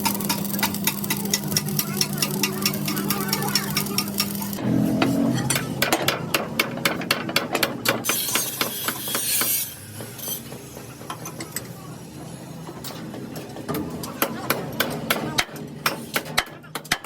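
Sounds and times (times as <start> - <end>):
hammer striking steel: 0.0 - 11.6.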